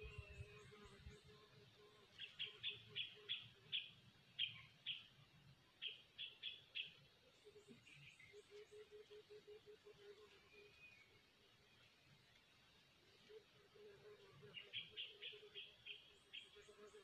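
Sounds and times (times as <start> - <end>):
bird chirping: 2.1 - 5.1, 5.8 - 9.2, 14.4 - 17.0.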